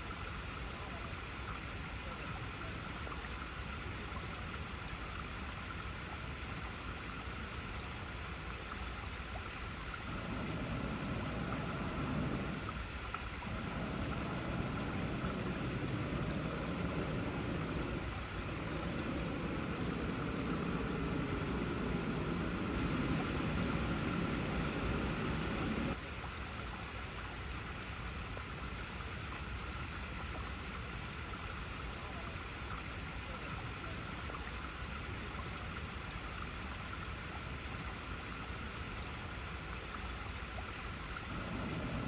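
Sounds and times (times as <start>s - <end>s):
water rushing over rocks: 1.2s - 26.3s, 40.9s - 42.0s.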